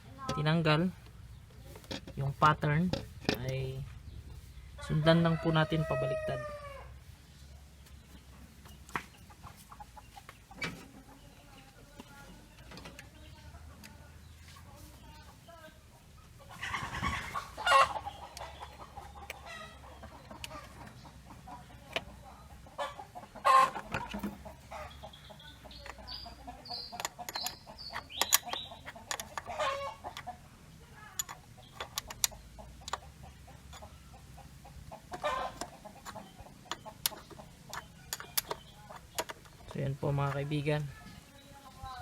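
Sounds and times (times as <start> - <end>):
chickens clucking: 0.0 - 42.0
metallic clicks of hand tools: 26.9 - 29.5, 31.2 - 33.0, 35.1 - 39.8.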